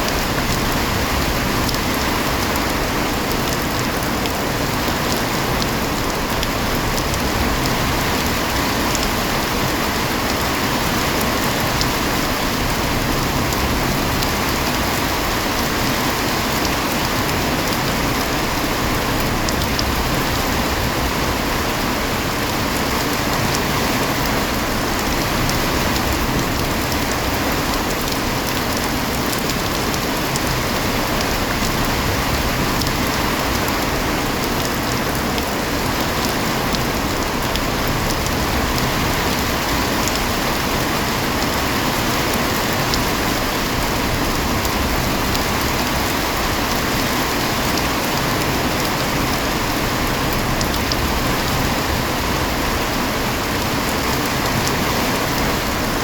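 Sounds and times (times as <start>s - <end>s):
raindrop ticks: 0.0s - 21.0s, 22.1s - 52.2s
heavy rain hissing: 0.0s - 56.0s.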